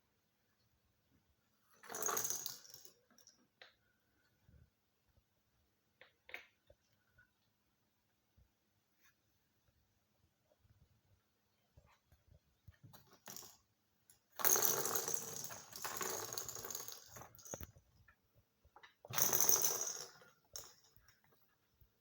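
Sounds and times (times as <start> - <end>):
toy ball rattling across floor: 1.7 - 3.4, 12.9 - 17.8, 19.0 - 21.3.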